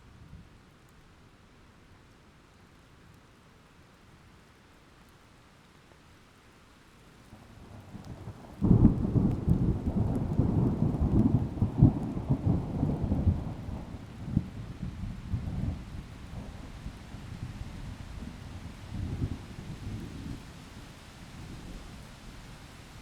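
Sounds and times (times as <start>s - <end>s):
thunder rumbling and clapping: 8.0s - 16.8s.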